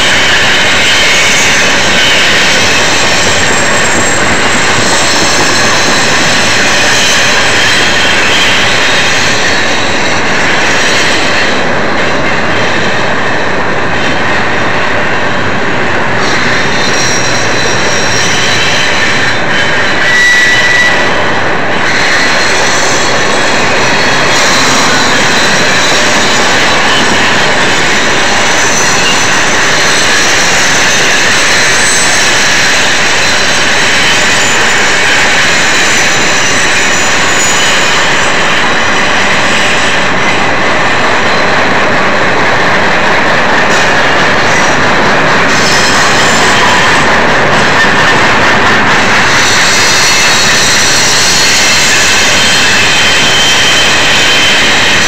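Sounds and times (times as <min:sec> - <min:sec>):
high-pitched wheel squeal: 0:00.0 - 0:13.4, 0:14.0 - 0:41.8, 0:42.4 - 0:55.0
freight train wheels rushing on rail: 0:00.0 - 0:55.0.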